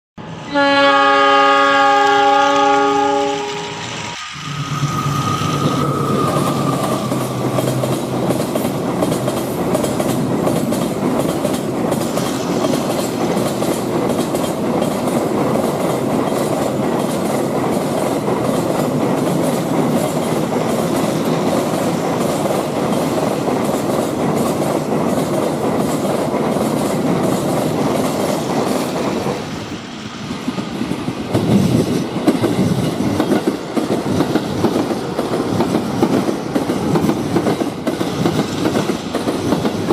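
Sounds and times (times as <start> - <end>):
train horn: 0.2 - 3.9
train rumble: 0.2 - 39.9
wheels clacking over rail joints: 2.6 - 29.5.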